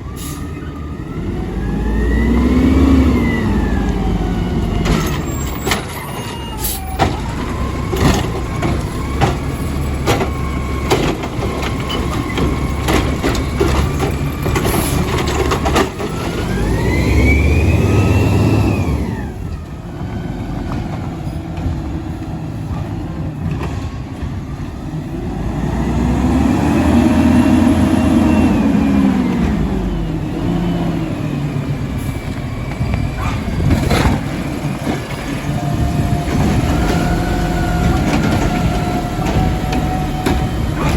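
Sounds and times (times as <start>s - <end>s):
diesel engine revving: 0.0s - 40.9s
clanks and knocks: 4.8s - 16.6s, 37.8s - 40.9s.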